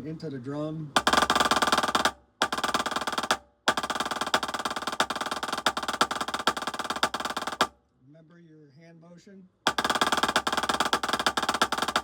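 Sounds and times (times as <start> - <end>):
snare drum rolls: 1.0 - 7.7, 9.7 - 12.0.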